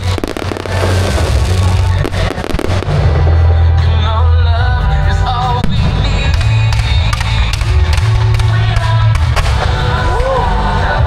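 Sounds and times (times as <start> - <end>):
fireworks bursting: 0.0 - 3.8, 5.6 - 10.3
music with heavy bass: 0.0 - 11.0.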